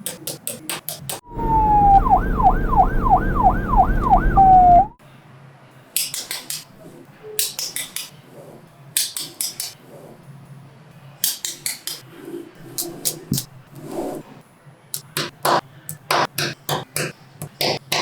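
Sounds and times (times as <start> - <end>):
low rumble: 1.2 - 5.0
police siren yelping: 1.2 - 5.0.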